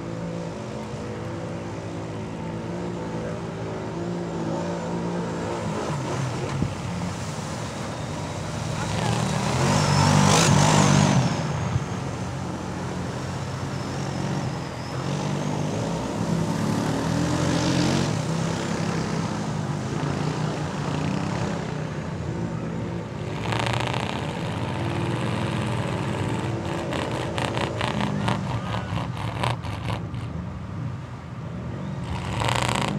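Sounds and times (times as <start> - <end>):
off-road vehicle engines revving: 0.0 - 32.9
engine rapid regular pulses: 23.2 - 30.4, 32.0 - 32.9.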